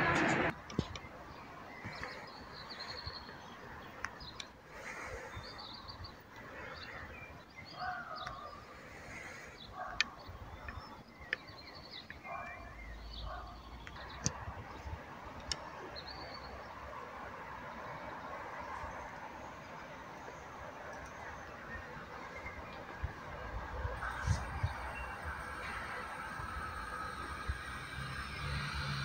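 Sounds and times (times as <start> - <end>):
birds chirping: 0.0 - 17.1, 17.7 - 29.0
outdoor background noise: 0.0 - 29.0.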